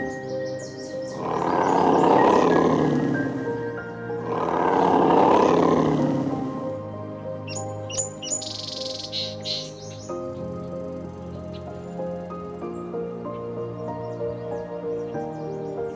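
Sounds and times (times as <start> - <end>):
background music held notes: 0.0 - 15.9
animal roaring: 1.0 - 6.8.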